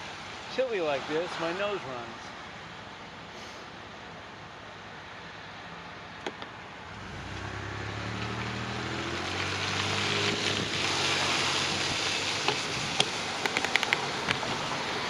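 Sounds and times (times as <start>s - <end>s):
vehicle passing: 6.8s - 12.9s
wind noise: 9.6s - 15.0s.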